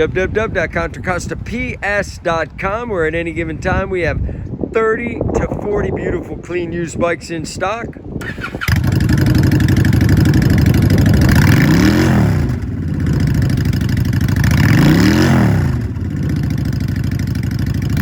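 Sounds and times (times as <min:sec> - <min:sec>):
motorcycle engine idling and revving: 0:08.2 - 0:18.0.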